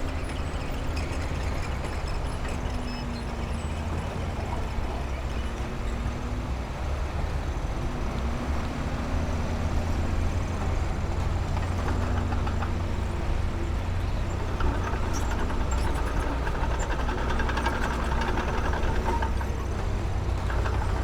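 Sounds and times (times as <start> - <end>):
light clatter: 0.0 - 6.1, 9.8 - 21.0
heavy diesel engine rumbling: 0.0 - 21.0.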